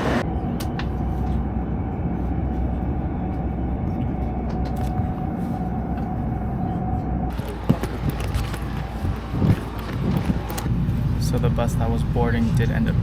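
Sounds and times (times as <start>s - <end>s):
train cabin rumble and hum: 0.0s - 13.0s.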